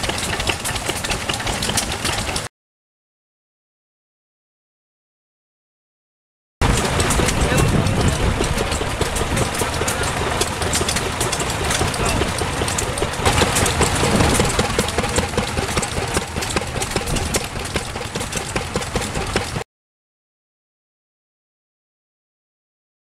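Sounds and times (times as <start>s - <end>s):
stationary engines clattering: 0.0s - 2.5s, 6.6s - 19.6s.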